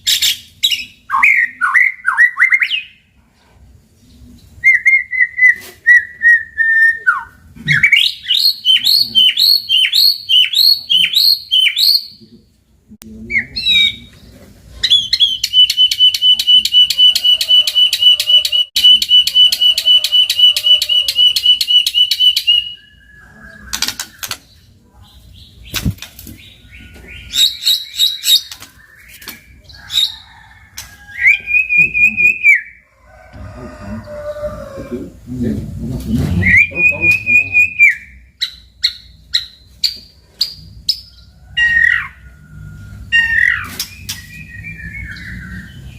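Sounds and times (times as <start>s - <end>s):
bird singing whistled phrases: 4.6s - 12.2s, 14.9s - 24.0s, 36.4s - 38.2s, 43.2s - 45.9s.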